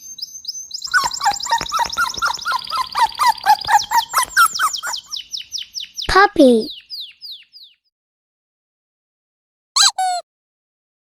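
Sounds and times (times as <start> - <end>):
falling whistled bird notes: 0.0 - 6.1
rapid high bird chirps: 0.0 - 7.9.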